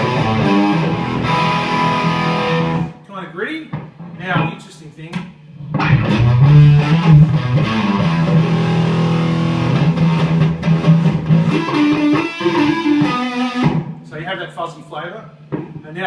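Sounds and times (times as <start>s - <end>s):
fuzzy electric guitar riff: 0.0s - 3.0s, 5.4s - 14.1s.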